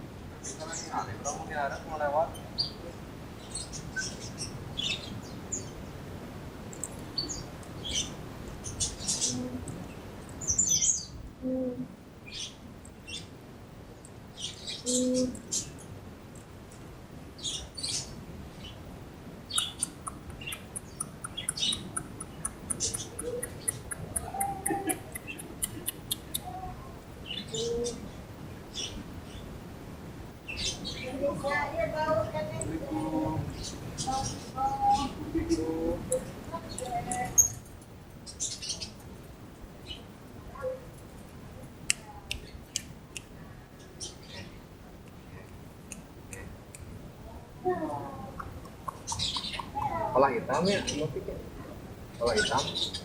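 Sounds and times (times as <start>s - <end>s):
parrot chirping: 19.5s - 26.5s, 48.3s - 50.1s.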